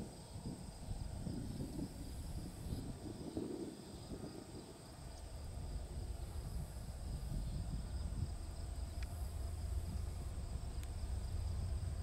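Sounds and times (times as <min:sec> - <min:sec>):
insects chirring: 0:00.0 - 0:12.0
freight train rumble: 0:04.9 - 0:12.0.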